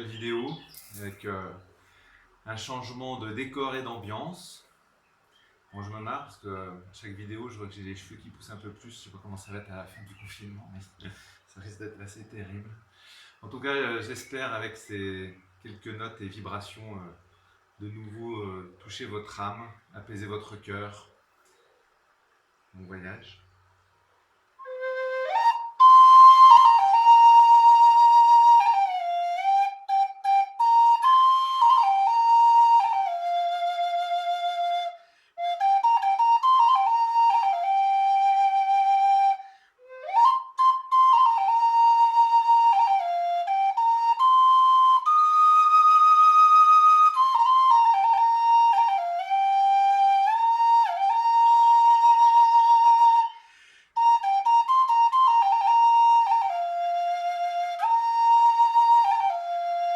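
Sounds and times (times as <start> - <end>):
solo flute melody: 24.6 - 59.9.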